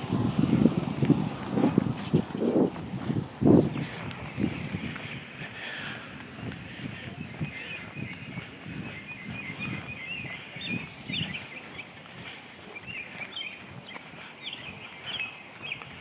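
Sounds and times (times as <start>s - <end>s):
footsteps thumping: 0.6s - 4.3s
small birds chirping: 3.0s - 16.0s.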